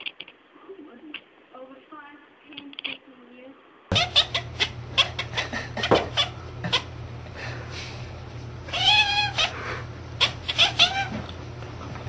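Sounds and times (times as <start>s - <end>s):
cat meowing: 3.9s - 5.3s, 8.7s - 9.6s, 10.2s - 11.2s.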